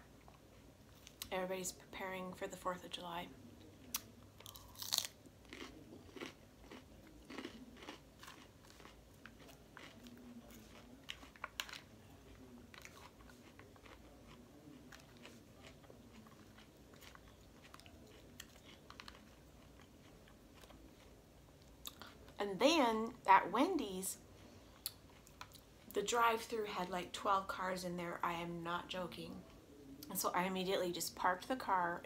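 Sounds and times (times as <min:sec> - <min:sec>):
crisp crunchy chewing: 0:03.9 - 0:22.4.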